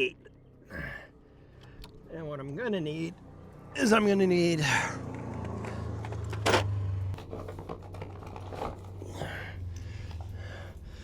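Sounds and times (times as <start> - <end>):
small objects rummaged through: 7.2 - 9.2.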